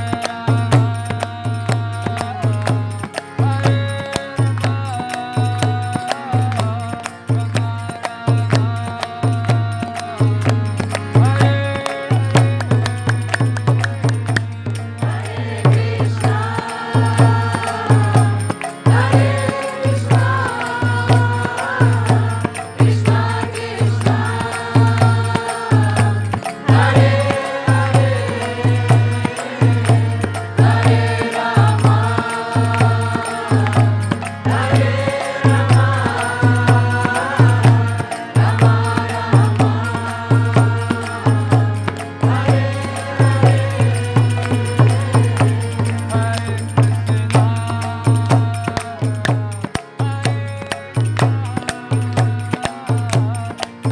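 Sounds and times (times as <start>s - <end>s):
jingling hand percussion: 0.0s - 53.9s
voices chanting: 11.1s - 49.0s
drum beating: 11.2s - 53.9s.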